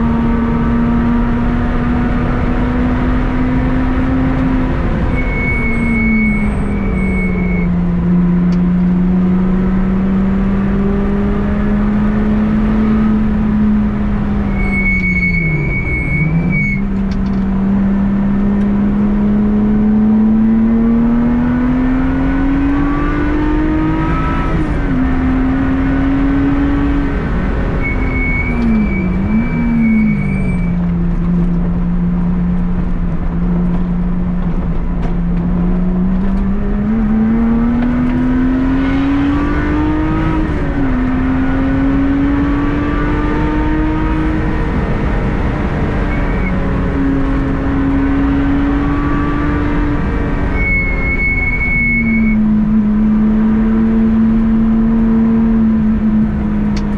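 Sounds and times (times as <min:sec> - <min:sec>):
car engine revving through gears: 0:00.0 - 0:56.9
short high steady tone: 0:50.5 - 0:52.4.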